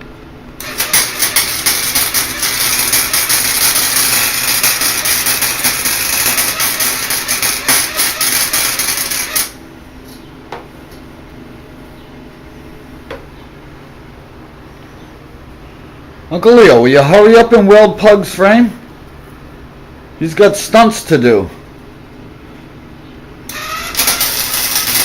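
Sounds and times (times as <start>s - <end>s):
welding arc crackling and sizzling: 0.6s - 9.6s, 23.5s - 25.0s.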